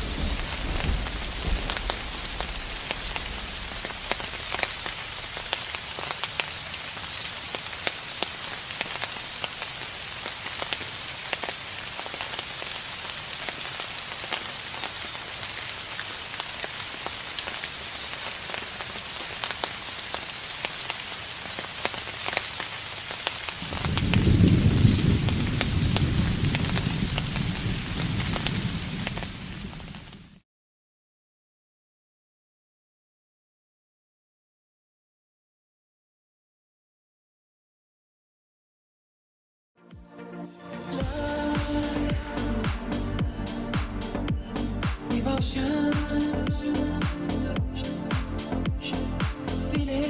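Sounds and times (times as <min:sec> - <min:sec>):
distant thunder rumbling: 0:00.0 - 0:06.7, 0:23.6 - 0:30.3
rain with drop ticks: 0:00.0 - 0:30.4.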